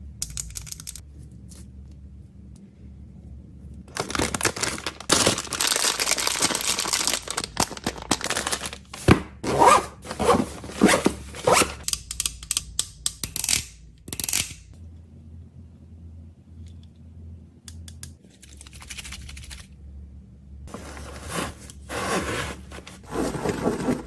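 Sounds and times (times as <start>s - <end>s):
packaging crinkling and tearing: 3.9s - 9.2s.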